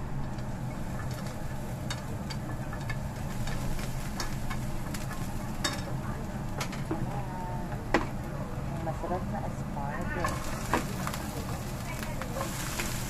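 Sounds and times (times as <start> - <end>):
onion sizzling in a pan: 0.0 - 13.0
steady low hum: 0.0 - 13.0
chopsticks tapping a pan: 1.0 - 8.2, 10.0 - 13.0.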